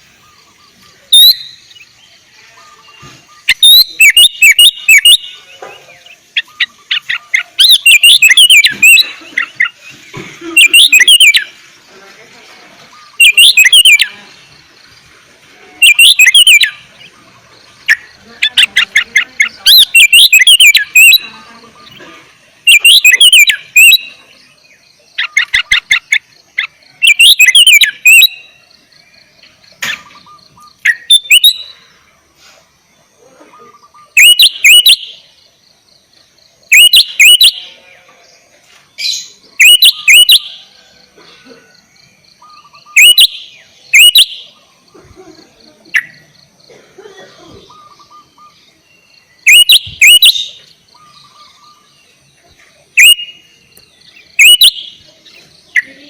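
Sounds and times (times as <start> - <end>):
bird singing whistled phrases: 0.2 - 1.9, 2.6 - 9.8, 10.4 - 11.5, 12.9 - 14.2, 15.8 - 17.1, 17.9 - 22.0, 22.6 - 24.3, 25.2 - 28.6, 29.9 - 31.8, 33.7 - 35.3, 36.7 - 37.8, 39.0 - 40.6, 42.4 - 44.6, 47.6 - 52.0, 53.0 - 53.5, 54.1 - 55.1.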